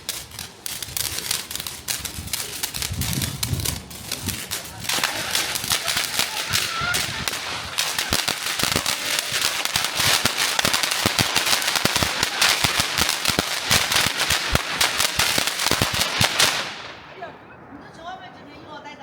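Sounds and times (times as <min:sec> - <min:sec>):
firecrackers crackling: 0:00.0 - 0:18.1.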